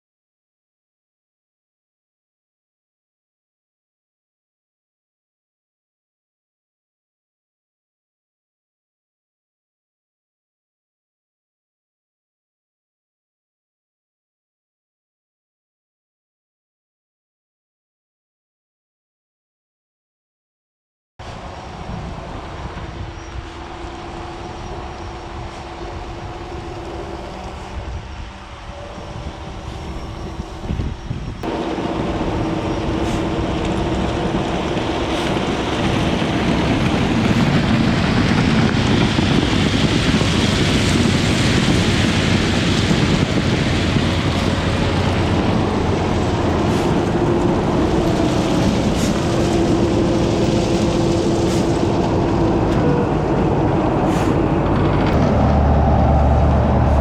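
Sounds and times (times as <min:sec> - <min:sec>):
rail machinery engine hum: 0:21.2 - 0:57.0.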